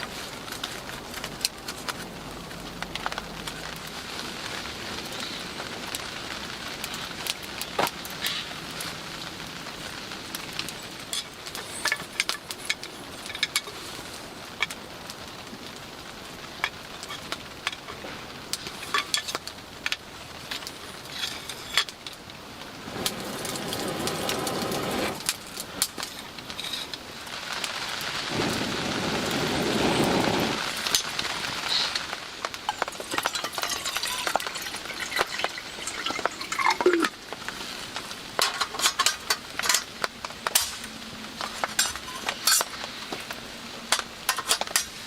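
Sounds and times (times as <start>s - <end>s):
campfire crackling: 0.0s - 45.0s
steady rain falling: 0.0s - 45.0s
rushing noise: 28.2s - 31.7s.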